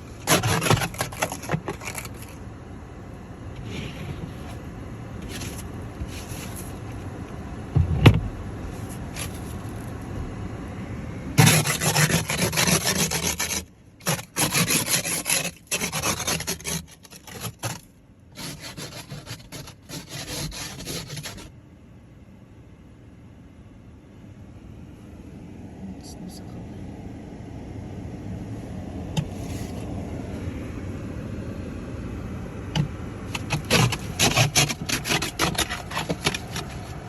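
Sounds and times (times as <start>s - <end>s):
scraping snow off a car: 0.0s - 2.4s, 3.5s - 7.0s, 8.7s - 10.0s, 11.4s - 21.5s, 29.3s - 29.9s, 33.3s - 37.0s.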